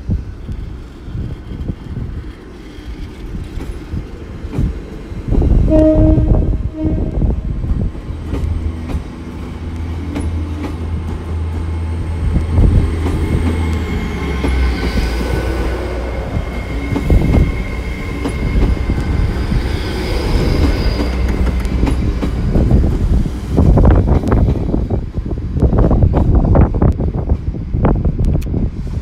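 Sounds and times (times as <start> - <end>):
train engine drone: 0.0 - 29.0.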